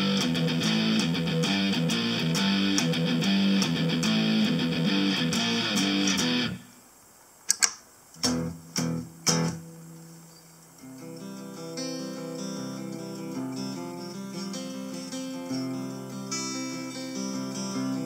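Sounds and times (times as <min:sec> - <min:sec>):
electric guitar riff: 0:00.0 - 0:06.7, 0:08.2 - 0:10.1, 0:10.8 - 0:18.0
electric guitar strums: 0:00.0 - 0:06.7, 0:08.2 - 0:09.9.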